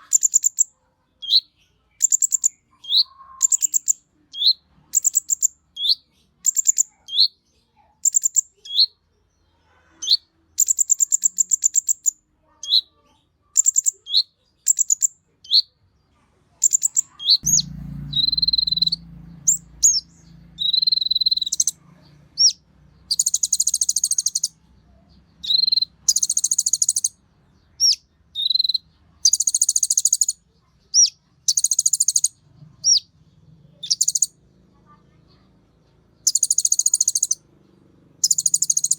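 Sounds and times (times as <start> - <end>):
songbird singing: 0.0 - 38.9
low hum: 17.4 - 23.1.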